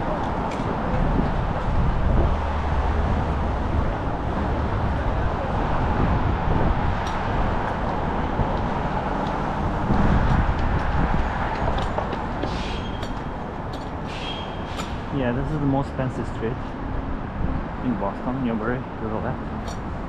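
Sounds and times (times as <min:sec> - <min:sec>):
passing cars: 0:00.0 - 0:20.0.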